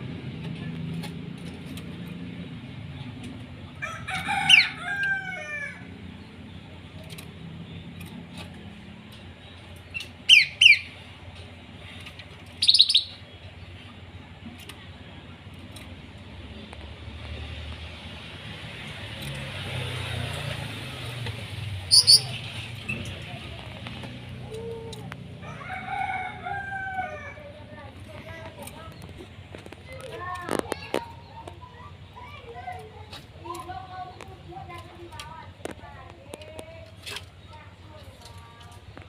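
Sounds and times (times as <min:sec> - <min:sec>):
bird call with falling notes: 0:12.6 - 0:13.2, 0:21.9 - 0:23.0
short sharp bird chirps: 0:12.6 - 0:13.2.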